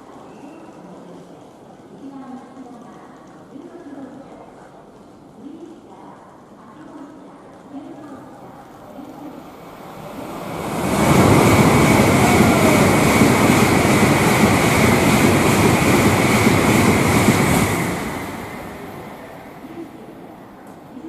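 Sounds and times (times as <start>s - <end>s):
train passing with rushing roar: 8.8s - 20.6s.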